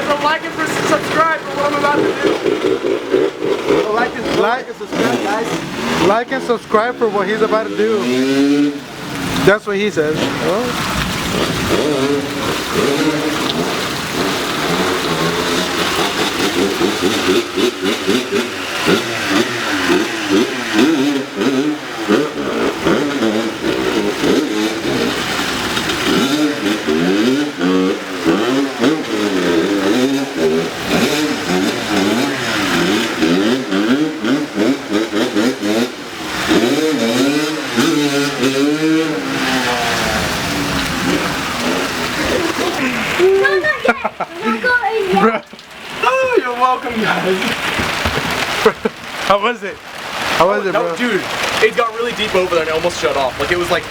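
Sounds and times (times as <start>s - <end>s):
person talking: 0.0s - 2.4s, 3.7s - 8.3s, 9.4s - 10.8s, 42.2s - 47.5s
dirt bike engine revving: 0.0s - 53.9s.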